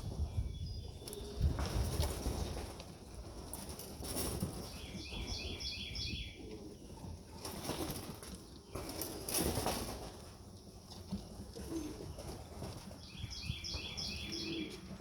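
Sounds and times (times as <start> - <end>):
low wind rumble: 0.0 - 2.7.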